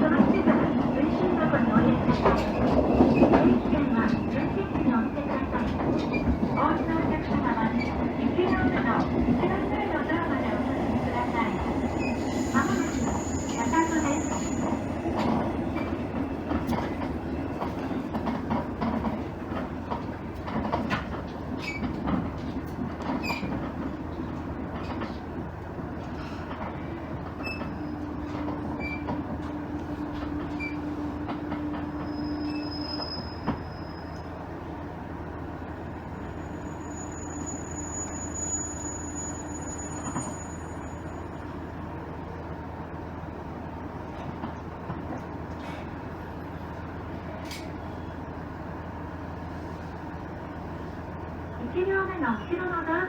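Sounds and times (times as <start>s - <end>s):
train wheels clicking on rails: 0.0s - 10.4s, 11.0s - 33.7s, 44.0s - 48.1s.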